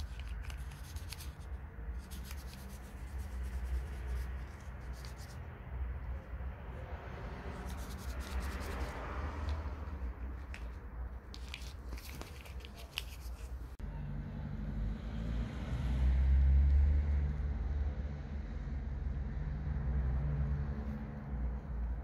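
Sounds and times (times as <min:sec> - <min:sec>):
vehicle engine humming: 0:00.0 - 0:12.8.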